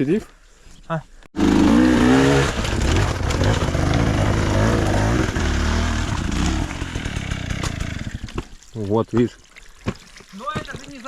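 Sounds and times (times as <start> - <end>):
motorcycle engine revving hard: 1.4 - 8.3.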